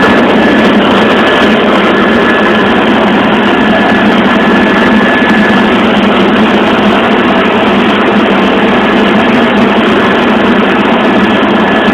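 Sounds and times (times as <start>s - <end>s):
faint high whine: 0.0s - 11.9s
helicopter engine and rotor drone: 0.0s - 11.9s.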